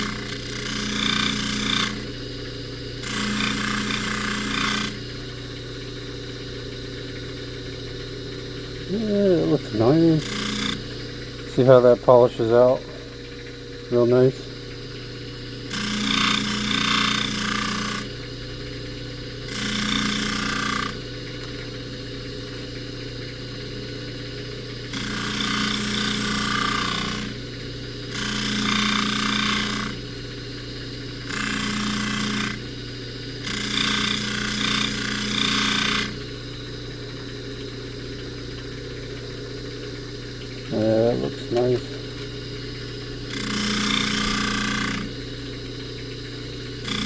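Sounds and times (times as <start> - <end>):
buffing machine humming: 0.0 - 2.4, 3.0 - 15.0, 39.0 - 46.0.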